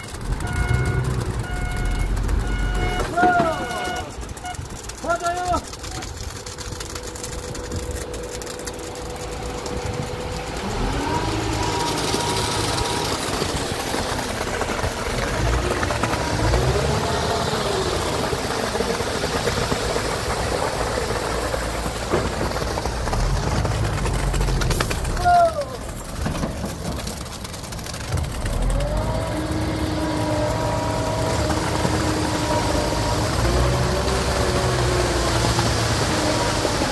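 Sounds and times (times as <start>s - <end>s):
vehicle engine running: 0.0s - 36.9s
rising and falling whine: 6.6s - 20.7s.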